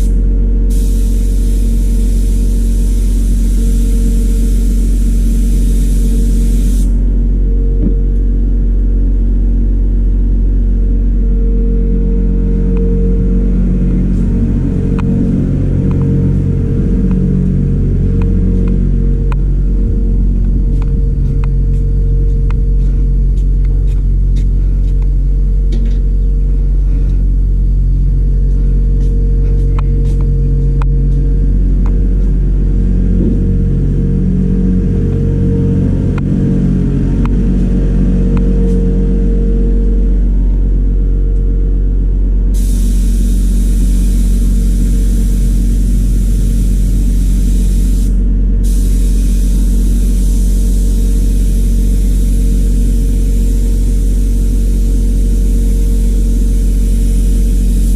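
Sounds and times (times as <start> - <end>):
electric motor humming: 0.0 - 7.1.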